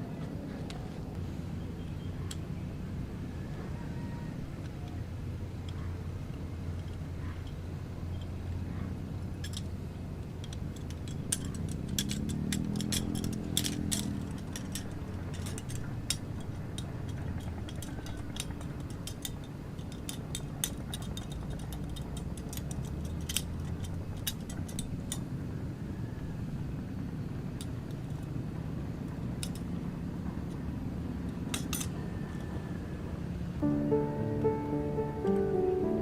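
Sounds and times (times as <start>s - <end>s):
steady low hum: 0.0s - 36.0s
objects clicking and clinking: 9.4s - 9.7s, 10.4s - 25.2s, 31.3s - 32.0s.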